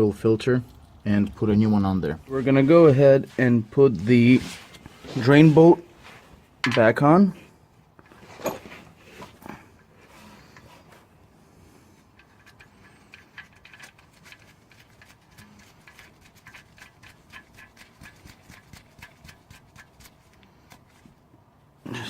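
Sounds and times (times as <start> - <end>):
rubs and taps: 12.2 - 21.2.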